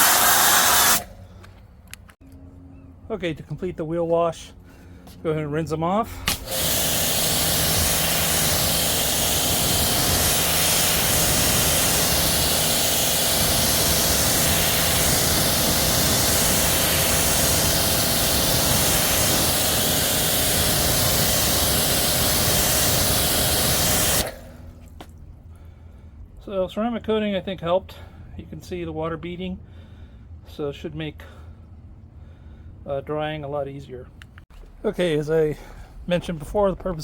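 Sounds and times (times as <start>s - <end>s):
pressure washer spray hissing: 0.0s - 1.1s, 6.2s - 24.6s
pump humming: 6.1s - 25.2s.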